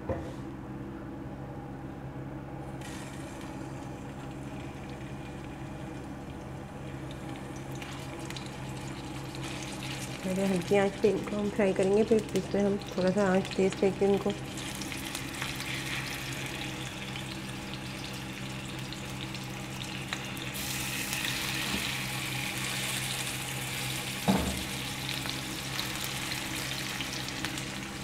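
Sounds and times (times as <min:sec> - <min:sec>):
kebabs sizzling in oil: 0:02.8 - 0:28.0.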